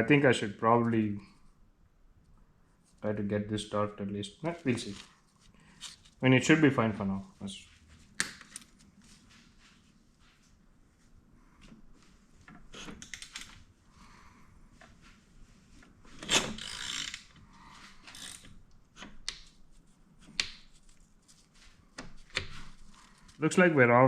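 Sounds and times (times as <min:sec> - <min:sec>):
ratchet wrench clicking: 0:16.6 - 0:17.2.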